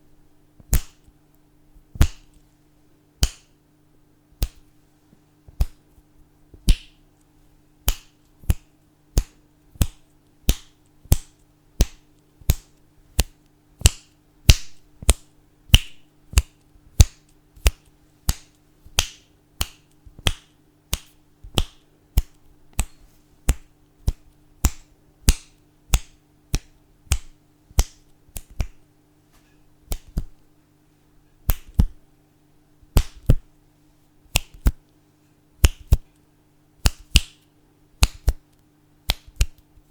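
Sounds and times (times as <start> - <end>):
faint steady hum: 0.0 - 39.9
fingers snapping: 0.6 - 1.1, 2.0 - 2.4, 3.2 - 3.6, 4.4 - 4.7, 5.5 - 5.8, 6.6 - 28.8, 29.9 - 30.4, 31.4 - 32.0, 32.9 - 33.4, 34.3 - 34.9, 35.6 - 36.2, 36.8 - 39.8.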